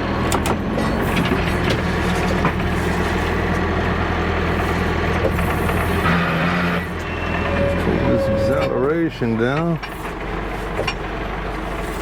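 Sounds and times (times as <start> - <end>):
diesel engine running: 0.0 - 12.0
metal clanks: 9.4 - 11.1.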